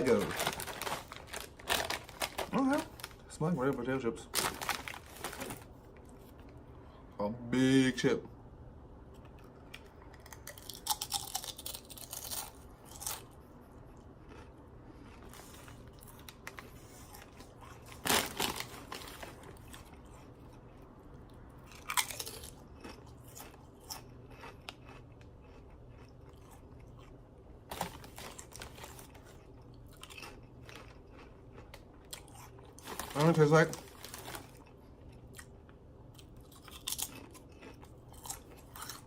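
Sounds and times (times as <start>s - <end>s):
potato chips crunching: 0.0s - 5.7s, 9.7s - 20.7s, 21.6s - 39.0s
chewing: 9.2s - 17.9s, 19.6s - 27.2s, 34.5s - 39.0s.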